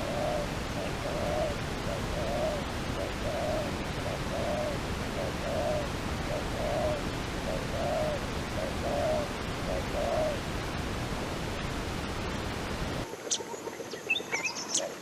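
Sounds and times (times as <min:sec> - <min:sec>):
dove cooing: 0:00.0 - 0:10.4
background hiss: 0:00.0 - 0:15.0.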